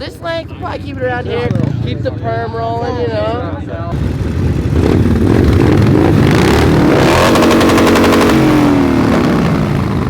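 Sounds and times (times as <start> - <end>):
pit bike engine revving: 3.9 - 10.0.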